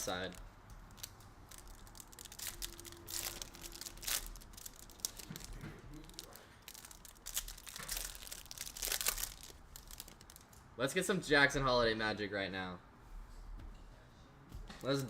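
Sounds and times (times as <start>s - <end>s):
card pack wrappers crinkling: 0.0s - 10.6s.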